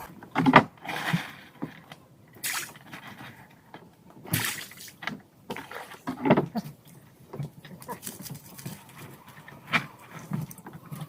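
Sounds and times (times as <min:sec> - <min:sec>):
water sloshing and dripping: 0:00.0 - 0:11.0
water splashing: 0:02.3 - 0:03.2, 0:04.3 - 0:11.0.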